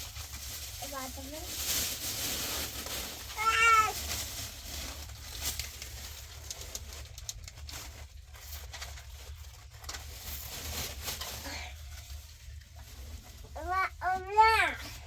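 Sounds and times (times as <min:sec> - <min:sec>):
rustling: 0:00.0 - 0:15.0.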